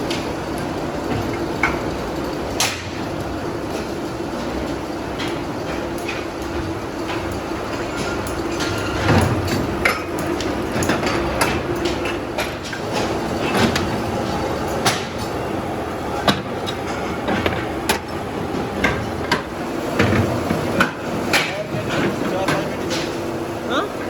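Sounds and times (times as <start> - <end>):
factory machinery humming: 0.0 - 24.0
sharp knocks and clanks: 16.2 - 23.2.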